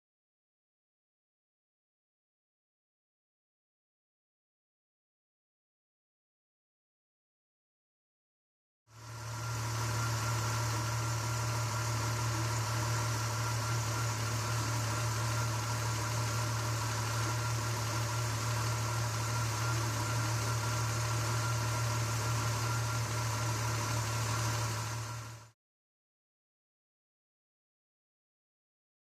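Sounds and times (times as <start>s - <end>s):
car engine idling: 9.0s - 25.5s.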